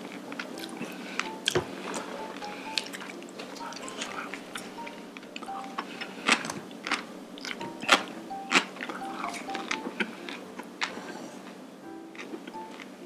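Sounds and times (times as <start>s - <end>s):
soft background music: 0.0s - 13.0s
wet chewing and crunching: 6.2s - 11.0s.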